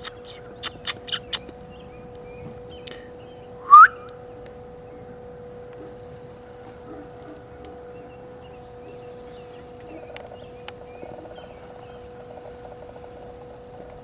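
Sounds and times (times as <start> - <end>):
high upward-slurred bird chirp: 0.0 - 4.1, 13.1 - 13.7
upward-sliding whistled bird note: 3.6 - 4.1.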